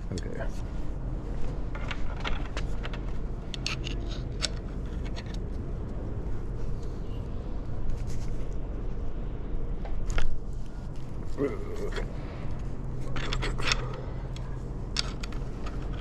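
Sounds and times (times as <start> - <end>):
steady low hum: 0.0 - 16.0
hand tools clicking on metal: 13.1 - 16.0.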